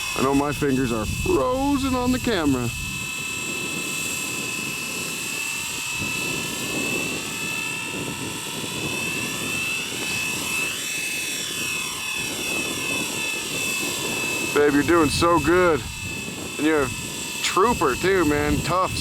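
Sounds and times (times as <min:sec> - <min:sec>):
low rushing hum: 0:00.0 - 0:03.2, 0:14.5 - 0:19.0
helicopter motor and rotor whine: 0:00.0 - 0:19.0.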